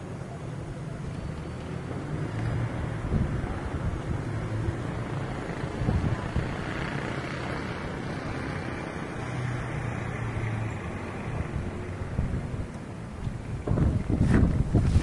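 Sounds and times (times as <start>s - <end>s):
wind buffeting microphone: 2.5s - 9.2s, 10.3s - 15.0s.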